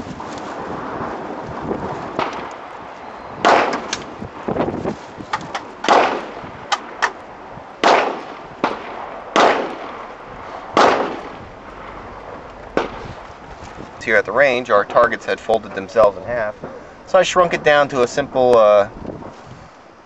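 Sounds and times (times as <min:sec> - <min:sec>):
wind noise on microphone: 0:00.0 - 0:20.0
sharp cracks: 0:00.2 - 0:19.2
rifle shots: 0:03.4 - 0:04.0, 0:05.8 - 0:07.2, 0:07.8 - 0:12.0, 0:12.7 - 0:13.2.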